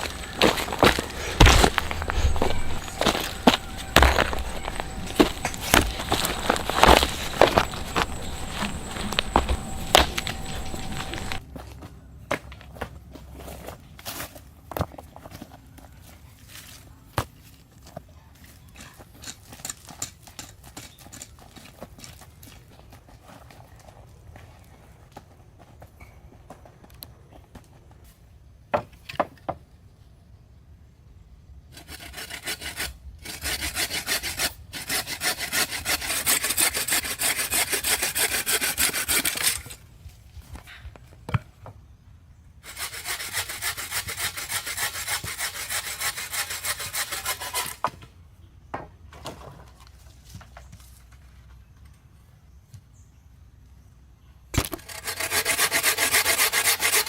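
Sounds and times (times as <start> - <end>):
hand saw cutting wood: 0.0 - 11.4, 31.7 - 39.8, 42.6 - 47.9, 54.6 - 57.0
sharp knocks: 0.0 - 11.4.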